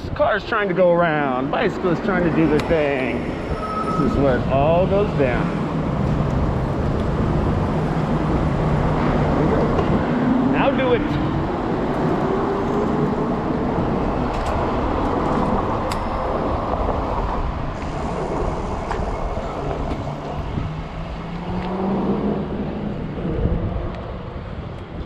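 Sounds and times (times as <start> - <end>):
city traffic: 0.0 - 25.0
wind buffeting microphone: 0.0 - 25.0
rising motor whine: 6.6 - 15.2.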